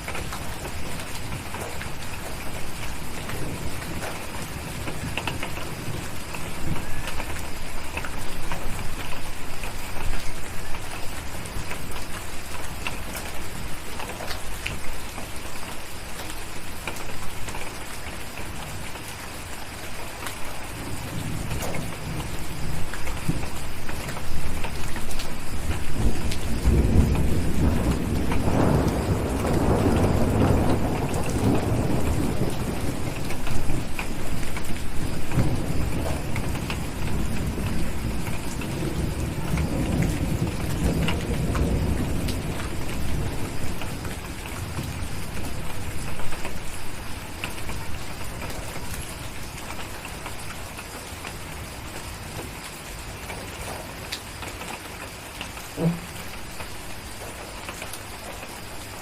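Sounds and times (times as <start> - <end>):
thunder rumbling: 0.0 - 12.1, 20.6 - 49.9
steady rain: 0.0 - 59.0.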